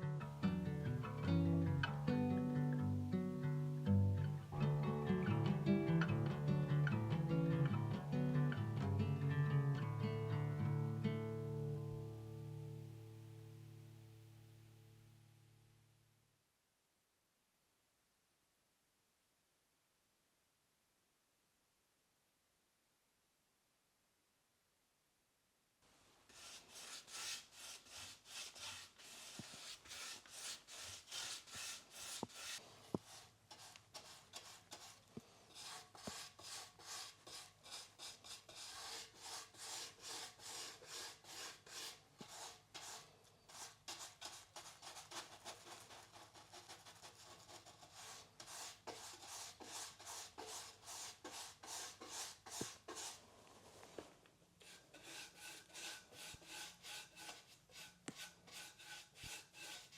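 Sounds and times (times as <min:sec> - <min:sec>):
rubbing strokes against surface: 0:26.3 - 0:59.9.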